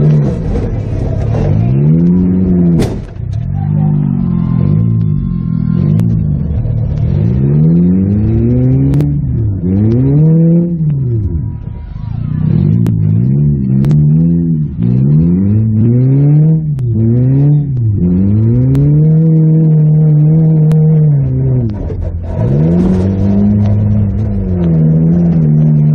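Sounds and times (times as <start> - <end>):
car engine revving: 0.0 - 25.9
sharp clicks and knocks: 20.6 - 25.9.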